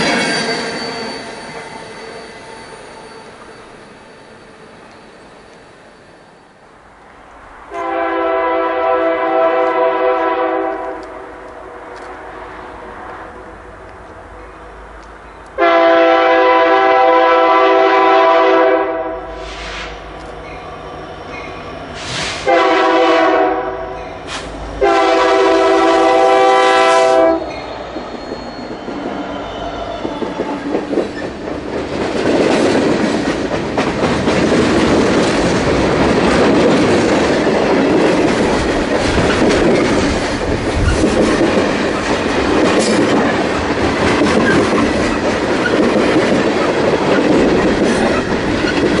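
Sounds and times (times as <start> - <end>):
locomotive air horn blasts: 7.7 - 11.3, 15.6 - 20.0, 22.4 - 24.0, 24.8 - 27.5
train wheels clattering on rails: 27.4 - 49.0.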